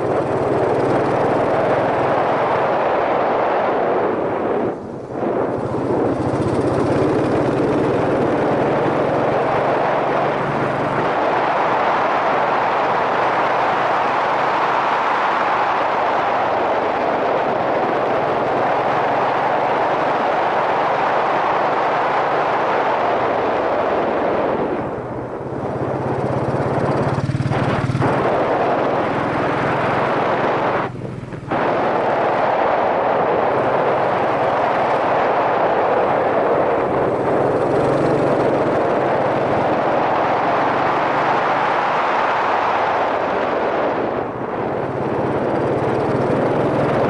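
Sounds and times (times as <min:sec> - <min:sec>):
motorcycle engine running: 0:00.0 - 0:02.9, 0:04.2 - 0:14.6, 0:24.4 - 0:41.6, 0:44.1 - 0:47.0
wind rush on microphone: 0:00.0 - 0:47.0.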